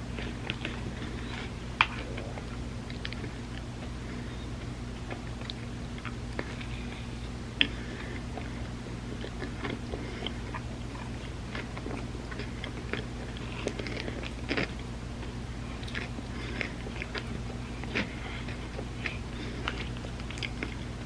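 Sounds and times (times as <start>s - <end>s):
steady low hum: 0.0s - 21.0s
person chewing with mouth clicks: 0.1s - 4.0s, 4.6s - 21.0s.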